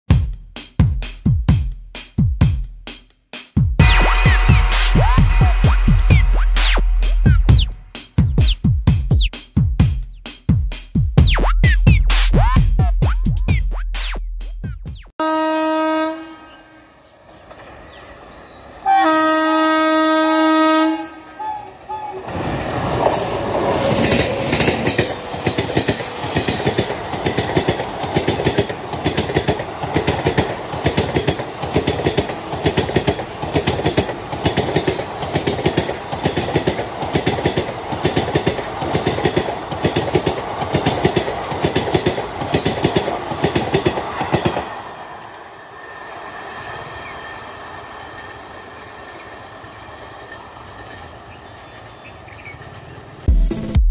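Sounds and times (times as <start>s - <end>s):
locomotive horn: 3.8s - 7.9s, 15.2s - 17.0s, 18.8s - 22.4s
train wheels clickety-clack: 22.3s - 45.0s.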